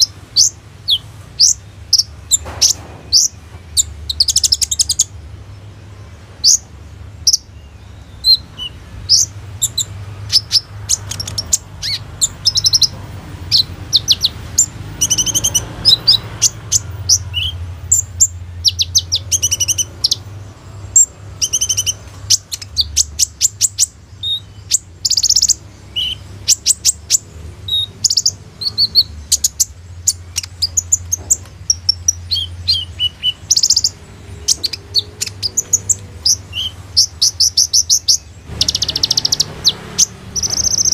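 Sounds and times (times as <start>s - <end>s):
bird chirping and trilling: 0.0s - 40.9s.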